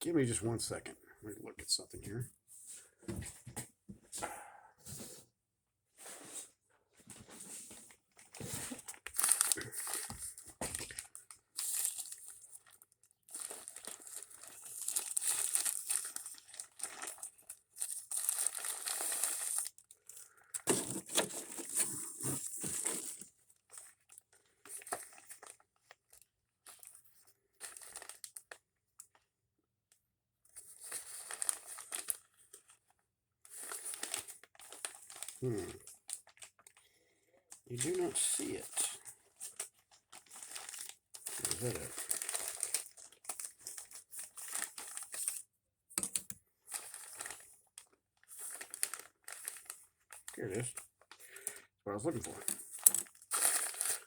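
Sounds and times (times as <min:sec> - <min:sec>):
packaging crinkling and rustling: 0:07.8 - 0:27.0, 0:27.6 - 0:29.2, 0:30.6 - 0:36.8, 0:37.8 - 0:54.0.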